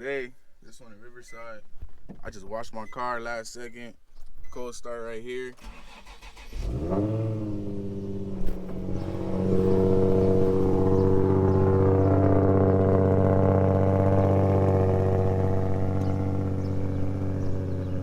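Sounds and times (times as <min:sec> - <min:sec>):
car engine idling: 0:05.6 - 0:18.0.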